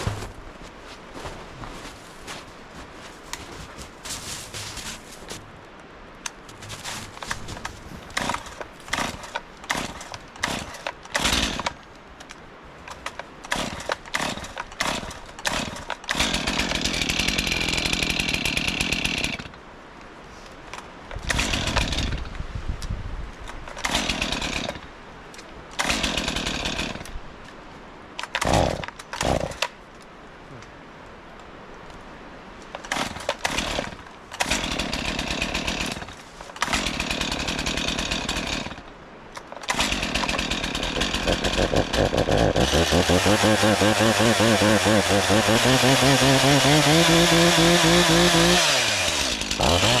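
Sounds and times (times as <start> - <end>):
chainsaw starting and running: 8.2 - 11.8, 13.5 - 19.6, 21.2 - 22.3, 23.8 - 24.8, 25.8 - 27.1, 28.3 - 29.7, 32.9 - 38.9, 39.6 - 50.0.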